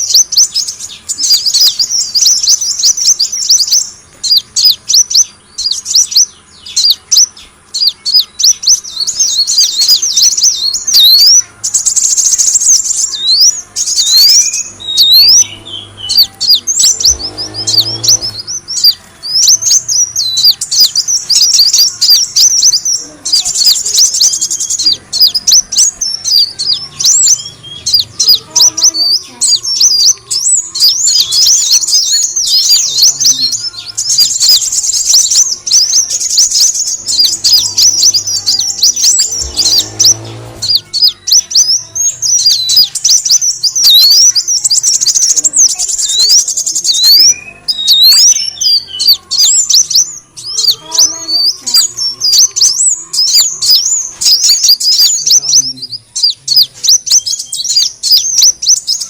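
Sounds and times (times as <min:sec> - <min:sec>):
sunbird chirping: 0:00.0 - 0:59.0.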